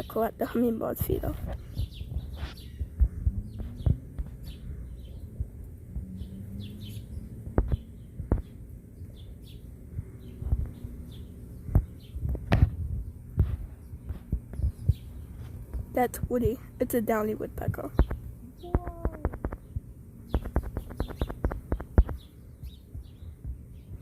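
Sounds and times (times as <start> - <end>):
faint bird chirps: 1.4 - 12.4, 17.8 - 24.0
woodpecker tapping on feeder: 20.4 - 22.3.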